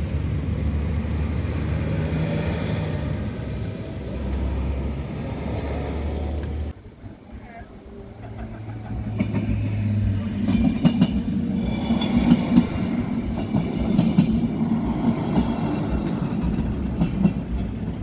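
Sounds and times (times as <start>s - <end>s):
train passing: 0.0s - 18.0s
wheels clacking over rail joints: 8.2s - 18.0s.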